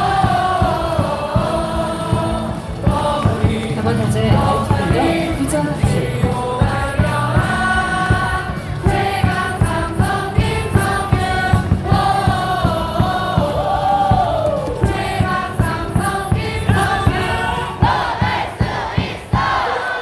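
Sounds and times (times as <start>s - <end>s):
cheering song over loudspeakers: 0.0s - 20.0s
crowd singing along: 0.0s - 20.0s
steady drumbeat: 0.0s - 20.0s.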